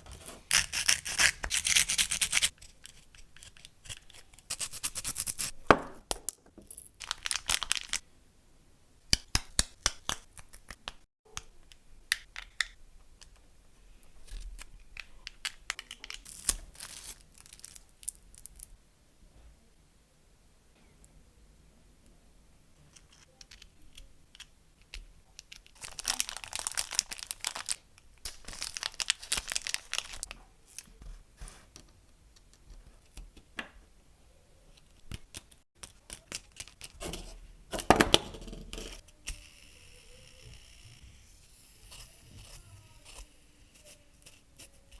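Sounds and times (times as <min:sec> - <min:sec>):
packaging tearing: 0:07.0 - 0:08.0, 0:25.8 - 0:30.3.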